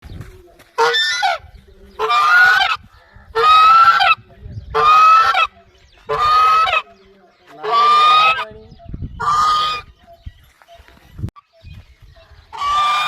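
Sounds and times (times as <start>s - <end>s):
goose honking: 0.8s - 1.4s, 2.0s - 5.5s, 6.1s - 6.9s, 7.5s - 8.6s, 9.2s - 9.9s, 12.5s - 13.0s.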